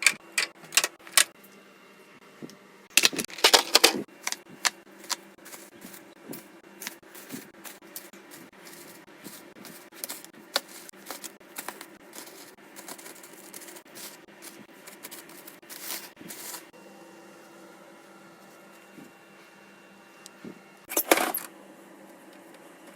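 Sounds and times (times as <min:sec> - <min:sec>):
containers clattering: 0:03.0 - 0:16.7.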